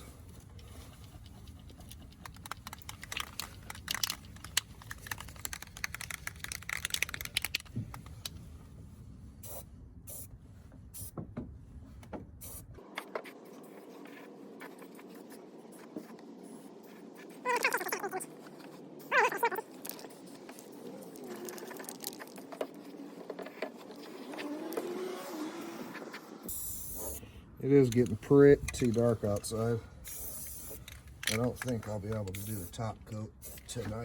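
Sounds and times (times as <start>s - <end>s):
objects being handled: 0.0s - 8.6s, 27.9s - 32.7s
low steady hum: 0.0s - 17.3s.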